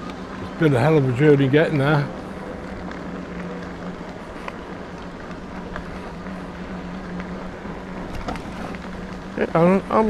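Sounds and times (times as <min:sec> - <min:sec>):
electric bike motor humming: 0:00.0 - 0:10.0
wind: 0:00.0 - 0:10.0
faint ticks: 0:01.6 - 0:09.8
tyre rumble: 0:02.3 - 0:09.8.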